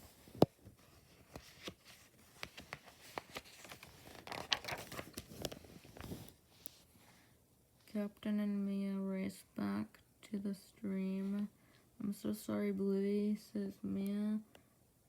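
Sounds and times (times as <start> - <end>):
book pages rustling: 0.0 - 7.0.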